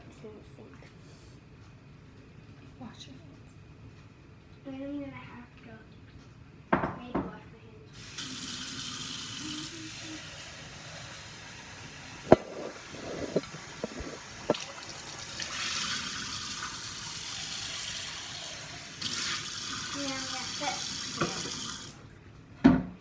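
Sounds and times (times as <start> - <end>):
tap water running: 8.0 - 22.2
clinks against sink: 12.3 - 14.8.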